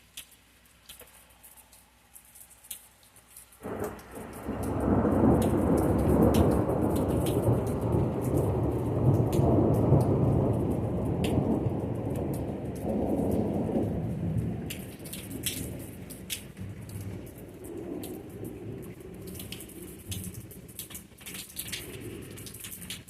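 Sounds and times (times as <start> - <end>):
raindrops ticking: 0.0 - 23.0
thunder rumbling: 3.6 - 20.8.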